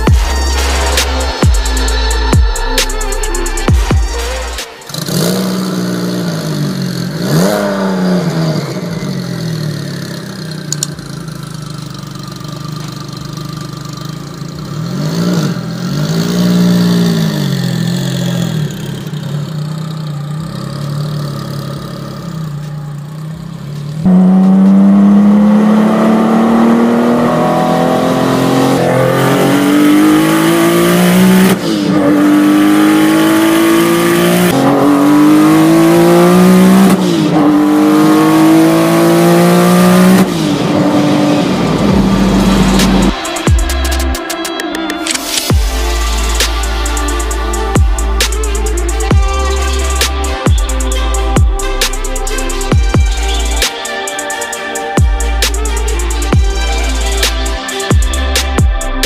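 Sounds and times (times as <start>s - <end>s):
car engine idling: 0.0s - 27.3s, 39.8s - 59.0s
engine accelerating hard: 0.0s - 44.4s, 45.1s - 59.0s
gear change: 39.8s - 59.0s.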